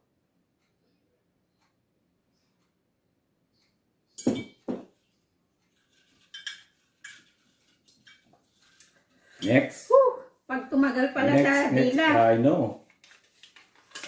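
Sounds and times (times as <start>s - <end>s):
dishes and cutlery clinking: 4.1s - 5.0s, 5.7s - 9.7s.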